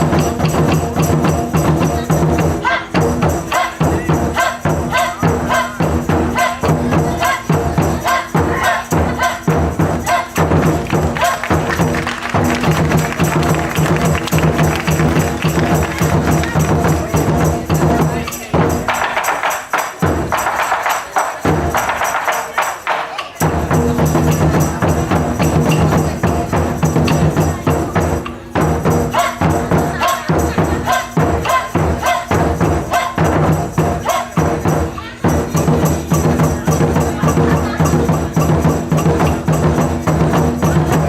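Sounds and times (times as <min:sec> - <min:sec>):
taiko drum ensemble: 0:00.0 - 0:41.0.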